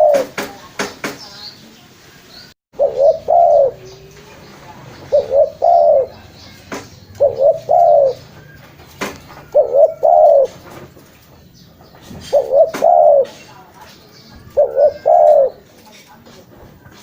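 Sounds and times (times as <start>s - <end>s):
dove cooing: 0.0s - 0.4s, 2.8s - 4.2s, 5.0s - 10.9s, 12.2s - 13.5s, 14.4s - 15.8s.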